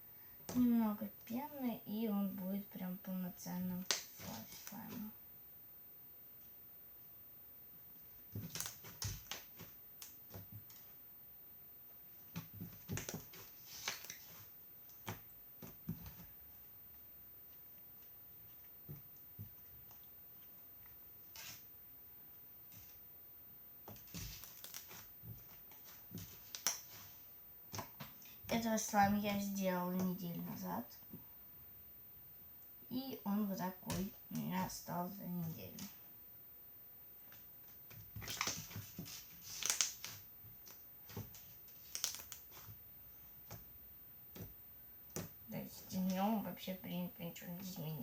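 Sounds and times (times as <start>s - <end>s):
slime squishing crackles and pops: 3.8s - 4.9s, 8.3s - 10.3s, 12.8s - 15.3s, 24.0s - 25.1s, 26.4s - 27.0s, 38.2s - 38.8s, 39.4s - 40.8s, 41.8s - 42.6s.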